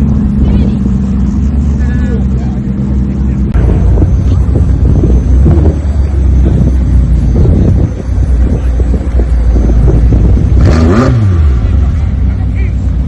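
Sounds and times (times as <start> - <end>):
car engine rumbling: 0.0 - 13.0
engine revving: 0.0 - 13.0
wind buffeting microphone: 3.5 - 11.7.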